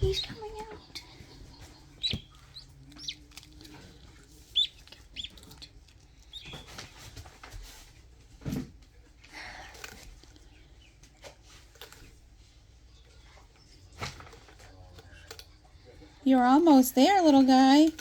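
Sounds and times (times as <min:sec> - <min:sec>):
duckling peeping: 0:00.0 - 0:07.0.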